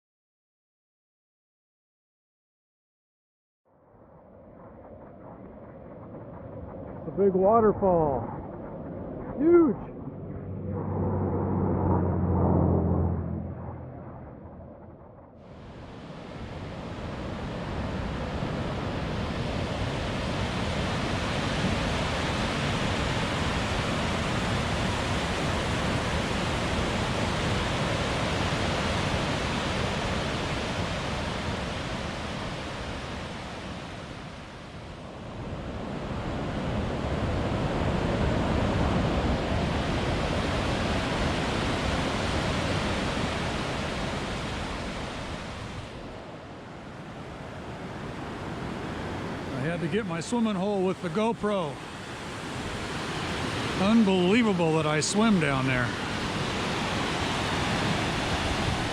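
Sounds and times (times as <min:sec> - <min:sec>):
river water rushing: 0:40.2 - 0:58.9.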